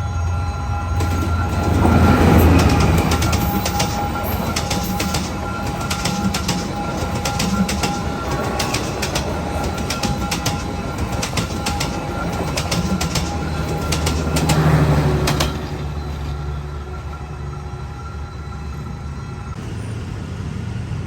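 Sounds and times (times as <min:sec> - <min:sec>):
thin steady squeal: 0:00.0 - 0:19.9
train rumble: 0:00.0 - 0:21.0
train wheels clicking over rail joints: 0:01.0 - 0:16.6.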